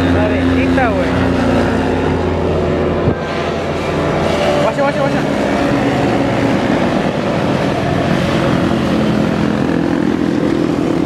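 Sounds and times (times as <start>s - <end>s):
motorcycles riding past: 0.0s - 11.0s.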